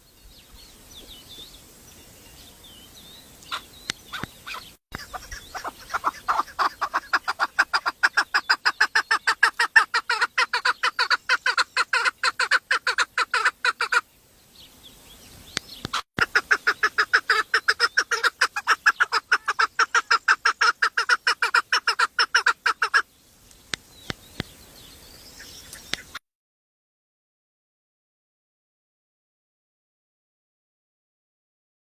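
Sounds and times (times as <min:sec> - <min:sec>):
bird calling rapid repeated notes: 0:03.4 - 0:14.1, 0:15.9 - 0:23.1.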